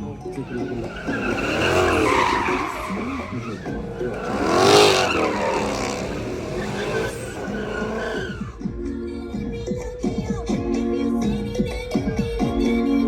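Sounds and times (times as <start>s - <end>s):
tyres squealing: 0.0s - 8.6s
car engine revving: 0.0s - 8.7s.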